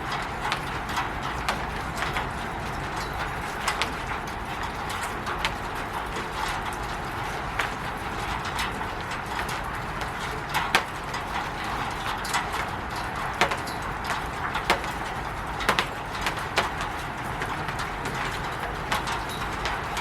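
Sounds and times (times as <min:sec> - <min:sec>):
rain on a roof: 0:00.0 - 0:20.0
drops tapping sharply: 0:12.2 - 0:19.8.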